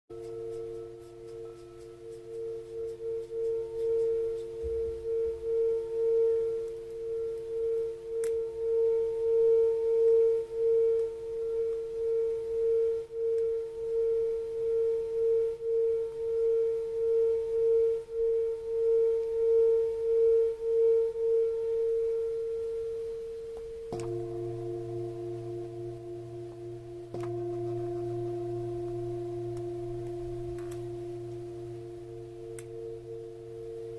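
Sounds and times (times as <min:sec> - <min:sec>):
singing bowl ringing: 0:00.1 - 0:22.8, 0:23.7 - 0:33.9
click: 0:08.2 - 0:08.4, 0:23.6 - 0:24.2, 0:27.1 - 0:28.0, 0:29.5 - 0:30.9, 0:32.5 - 0:32.8.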